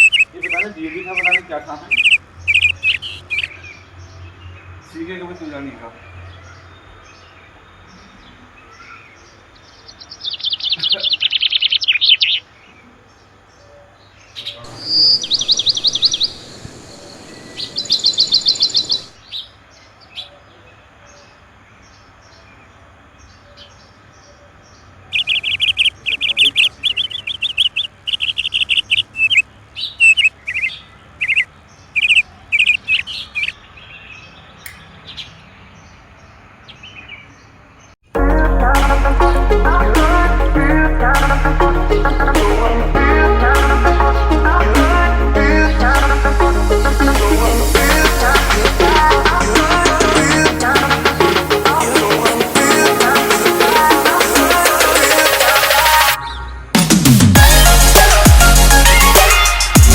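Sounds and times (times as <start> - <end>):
songbird trilling: 0.0 - 3.8, 14.4 - 19.5, 25.1 - 35.7.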